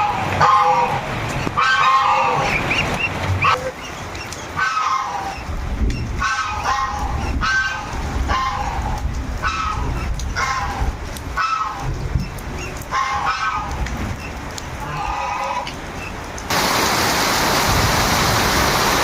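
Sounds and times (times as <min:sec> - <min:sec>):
waterfowl honking: 0:00.0 - 0:05.6, 0:06.2 - 0:10.8, 0:11.4 - 0:11.9, 0:12.8 - 0:13.8, 0:14.8 - 0:15.8
rain hissing: 0:13.6 - 0:19.0.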